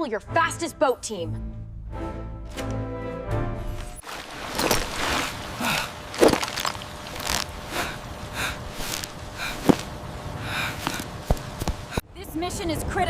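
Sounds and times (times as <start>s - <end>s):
background music: 0.0s - 4.0s.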